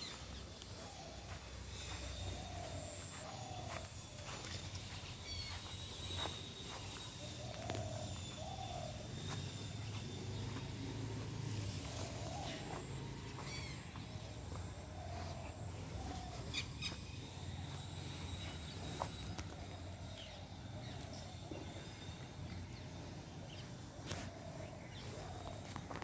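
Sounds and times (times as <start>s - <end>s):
bird chirps and calls: 0.0s - 10.8s.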